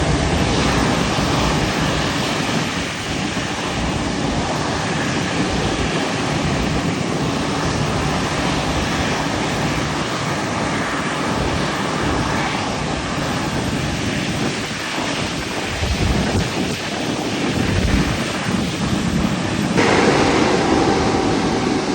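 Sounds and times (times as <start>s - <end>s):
faint steady whine: 19.8s - 21.9s
jet engines roaring: 19.8s - 21.9s.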